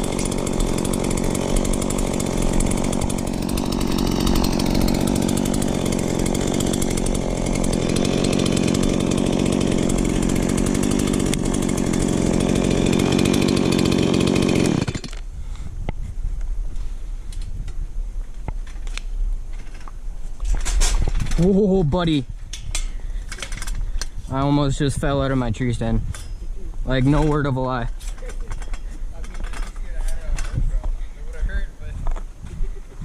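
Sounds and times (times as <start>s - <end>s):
chainsaw running: 0.0s - 15.3s.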